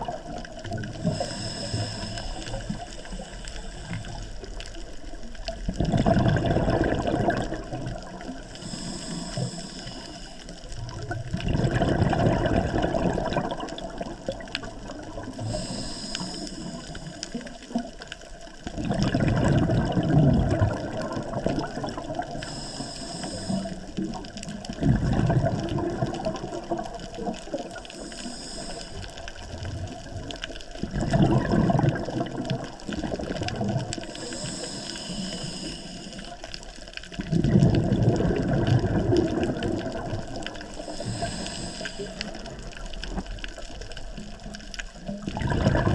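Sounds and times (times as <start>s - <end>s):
exhaled bubbles gushing underwater: 0.0s - 45.9s
regulator inhalation hiss: 1.0s - 4.4s, 8.5s - 10.6s, 15.4s - 17.6s, 22.3s - 24.0s, 27.8s - 29.4s, 34.0s - 36.5s, 40.7s - 42.6s.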